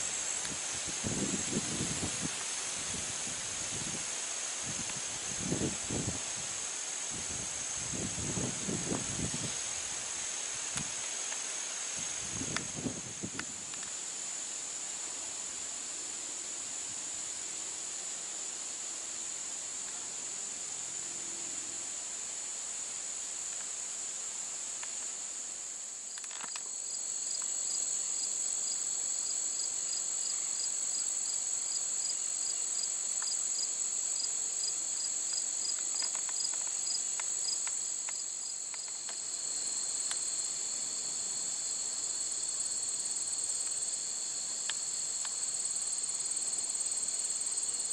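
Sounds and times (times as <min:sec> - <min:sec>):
insect chirping: 0:16.7 - 0:47.9
insects singing in chorus: 0:19.6 - 0:47.9.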